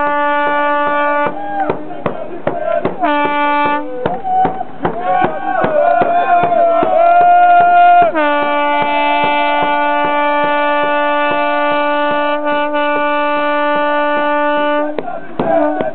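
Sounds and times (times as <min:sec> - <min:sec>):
horn long note: 0:00.0 - 0:15.9
regular beat: 0:00.4 - 0:15.9.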